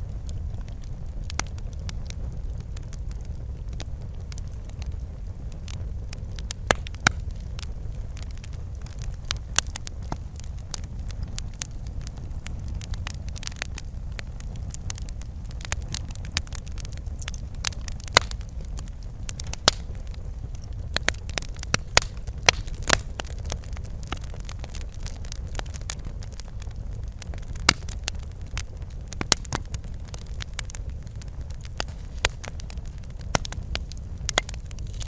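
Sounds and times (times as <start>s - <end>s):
fireplace fire crackling: 0.0s - 35.0s
low rumble of flames: 0.0s - 35.0s
sharp pops and snaps: 6.6s - 7.6s, 16.4s - 20.2s, 21.0s - 25.1s, 27.3s - 28.1s, 29.1s - 30.7s, 31.6s - 35.0s.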